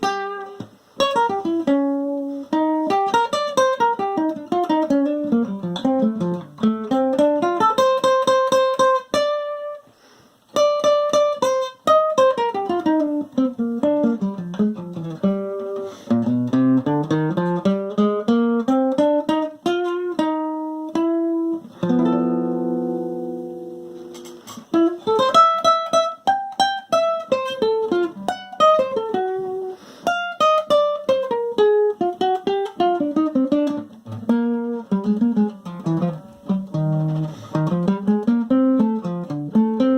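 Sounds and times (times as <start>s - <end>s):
acoustic guitar picking: 0.0s - 9.8s, 10.5s - 39.9s.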